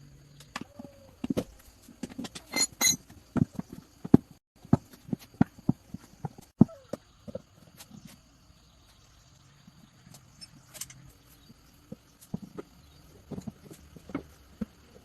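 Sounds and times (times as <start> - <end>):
tools and metal parts clinking: 2.0 - 3.2, 10.1 - 11.2.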